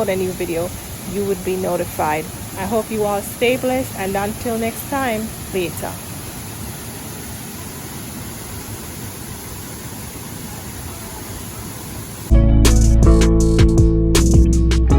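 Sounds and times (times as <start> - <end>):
stream water flowing: 0.0 - 12.3
acoustic guitar music: 12.3 - 14.9.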